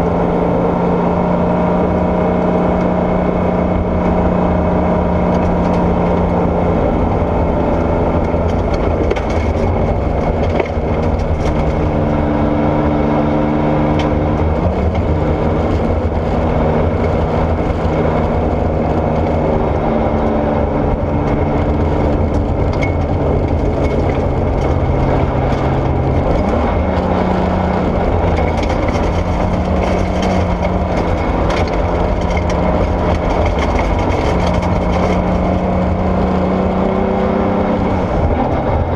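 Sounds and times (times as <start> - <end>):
rally car engine running hard: 0.0 - 38.9
gravel ticks: 21.2 - 36.0.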